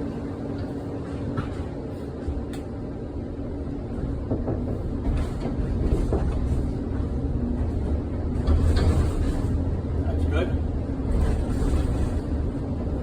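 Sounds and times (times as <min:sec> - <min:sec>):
streetcar rumble: 0:00.0 - 0:13.0
knocks and rattles: 0:04.2 - 0:07.1.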